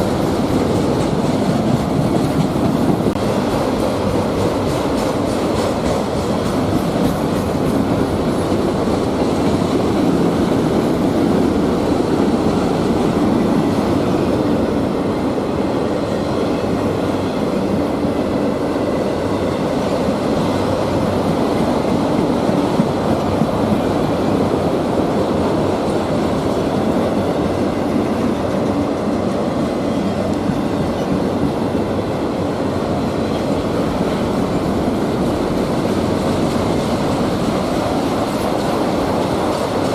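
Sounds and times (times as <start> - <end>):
freight train wheels clacking: 0.0 - 39.9.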